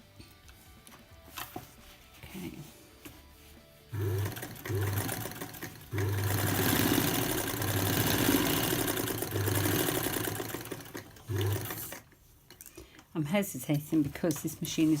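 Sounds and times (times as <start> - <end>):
sewing machine stitching: 3.9 - 12.1.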